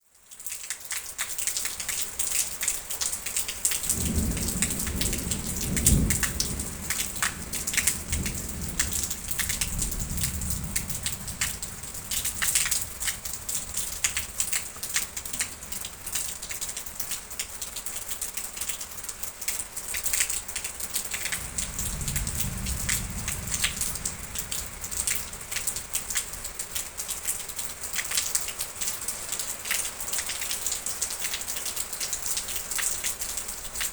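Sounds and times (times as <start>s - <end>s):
rain pattering: 0.0s - 33.9s
rolling thunder: 3.8s - 16.2s, 21.0s - 27.0s.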